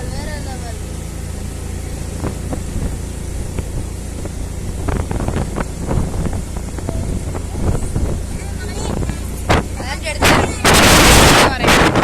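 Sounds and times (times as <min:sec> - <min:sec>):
vehicle engine and road rumble: 0:00.0 - 0:12.0
wind rushing over microphone: 0:02.0 - 0:12.0.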